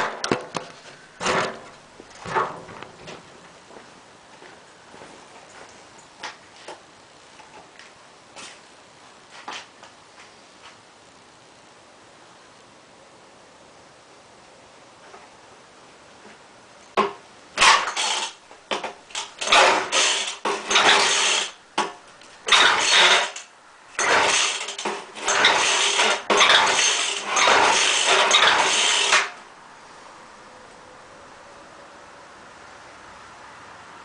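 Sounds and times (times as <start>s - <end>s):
recoil starter pulls: 17.0s - 29.4s
engine turning over: 17.6s - 21.6s, 22.4s - 29.4s.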